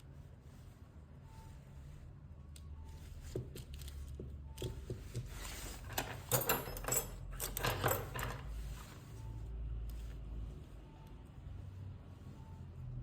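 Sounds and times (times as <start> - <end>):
tools clicking and tapping: 3.3 - 8.5
clicking scraping and rustling: 3.3 - 9.1.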